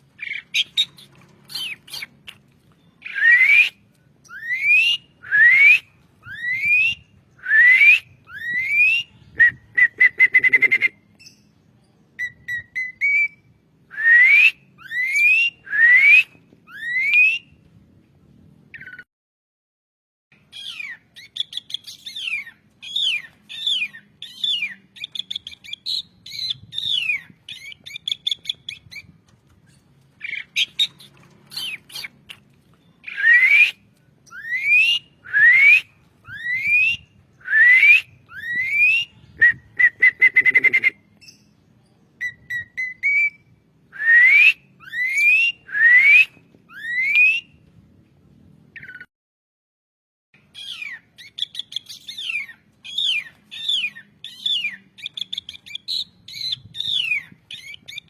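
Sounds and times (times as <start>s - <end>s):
starling singing whistles: 3.0s - 11.5s, 33.0s - 41.5s.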